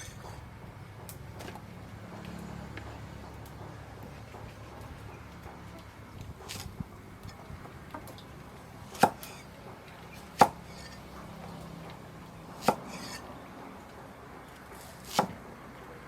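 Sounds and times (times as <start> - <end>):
knife chopping on cutting board: 6.4 - 7.4, 8.9 - 9.4, 12.6 - 13.2, 14.8 - 15.4.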